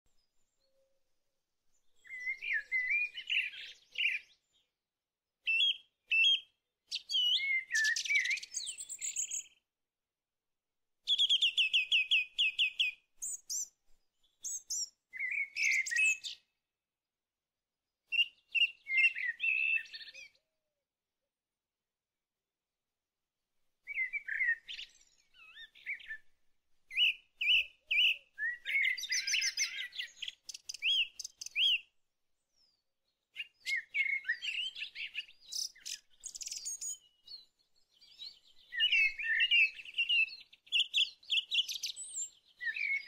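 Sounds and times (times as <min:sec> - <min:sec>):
songbird chirping and whistling: 0:02.0 - 0:04.6, 0:05.4 - 0:09.6, 0:11.1 - 0:13.7, 0:14.3 - 0:16.4, 0:18.1 - 0:20.3, 0:23.9 - 0:26.3, 0:26.9 - 0:32.8, 0:33.4 - 0:43.0.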